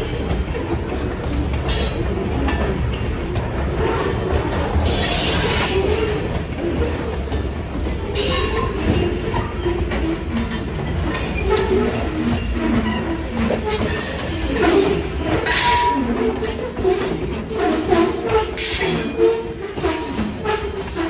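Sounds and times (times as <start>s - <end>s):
steel wheels rumbling on rail: 0.0s - 21.0s
wheel squeals and clacks: 0.0s - 21.0s.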